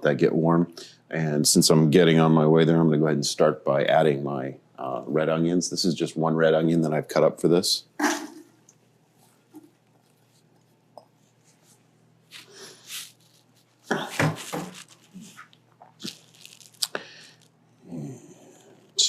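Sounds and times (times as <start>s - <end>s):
chopped onion rustling and clattering: 12.3s - 15.5s.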